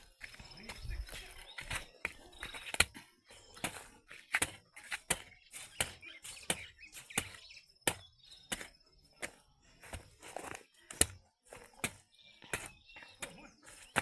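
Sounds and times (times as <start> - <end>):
hoe chopping wet soil: 0.0 - 14.0.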